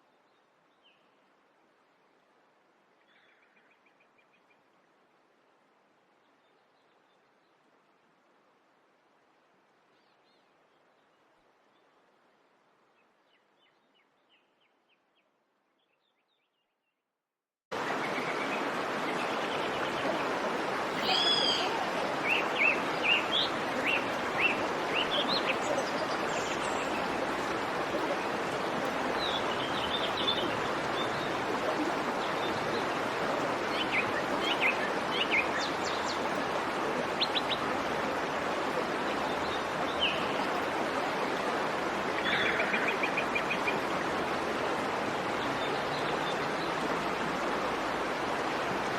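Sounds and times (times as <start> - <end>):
birds chirping: 17.9 - 36.5.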